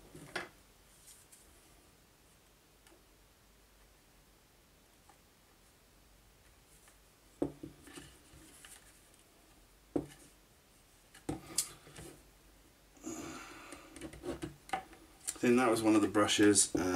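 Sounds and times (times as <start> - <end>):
parts scraping and rubbing: 13.7 - 14.5.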